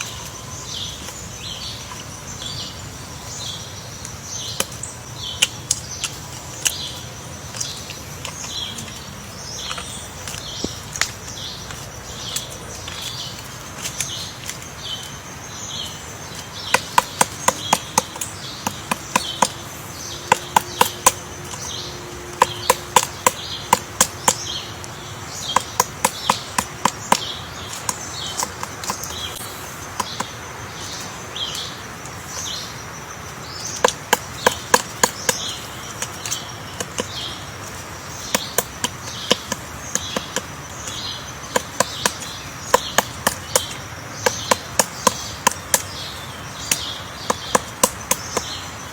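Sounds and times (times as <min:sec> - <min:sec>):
woodpecker knocking on wood: 0:04.1 - 0:15.2, 0:15.8 - 0:48.9.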